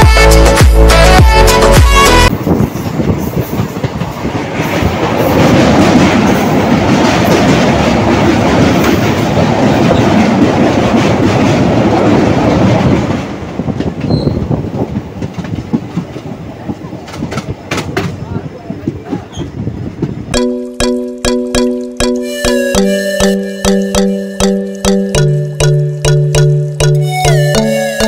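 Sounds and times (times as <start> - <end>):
train clattering rumble on bridge: 2.3 - 20.3.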